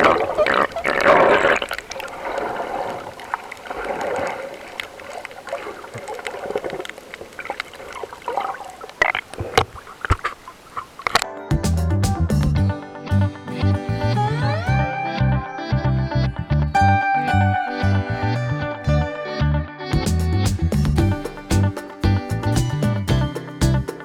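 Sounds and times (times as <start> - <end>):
water sloshing and splashing: 0.0 - 11.2.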